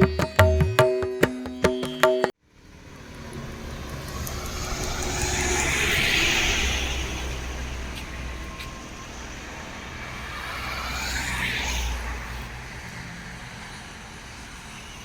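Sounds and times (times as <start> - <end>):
music with tabla: 0.0 - 2.4
vehicle passing by: 2.5 - 15.0.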